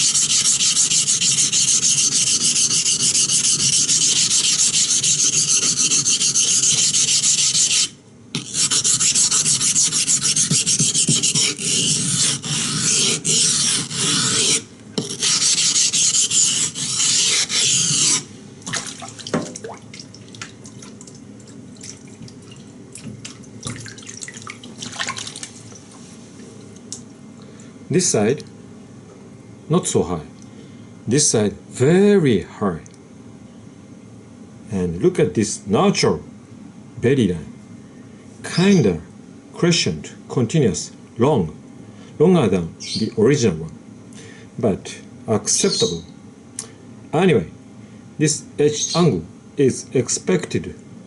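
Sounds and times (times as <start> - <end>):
knife scraping on whetstone: 0.0 - 18.3.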